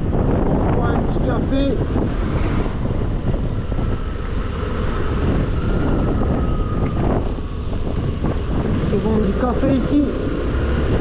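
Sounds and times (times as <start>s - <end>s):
wind on microphone: 0.0s - 11.0s
scooter engine running: 2.7s - 11.0s.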